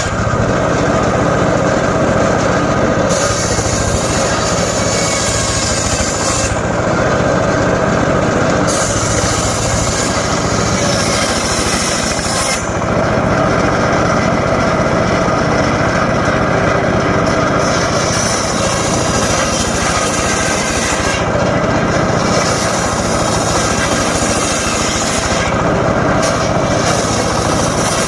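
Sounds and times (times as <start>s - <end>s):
circular saw droning: 0.0s - 28.0s
saw blade hissing through wood: 3.1s - 6.8s, 8.7s - 12.9s, 17.6s - 21.4s, 22.1s - 25.6s, 26.2s - 28.0s.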